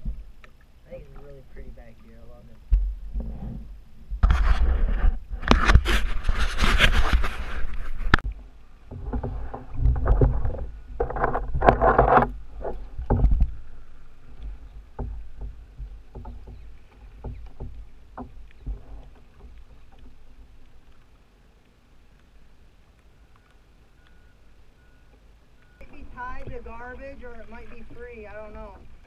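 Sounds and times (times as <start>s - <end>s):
sharp knocks and clicks: 8.9s - 13.6s, 14.3s - 20.2s.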